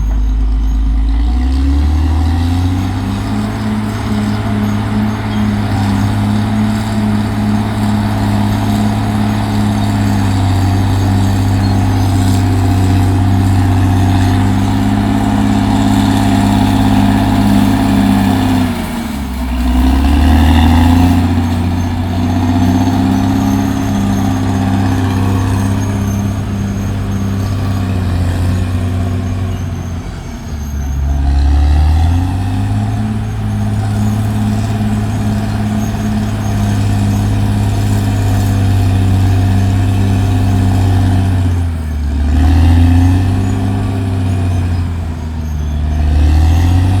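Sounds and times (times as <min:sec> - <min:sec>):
bulldozer diesel engine running: 0:00.0 - 0:47.0.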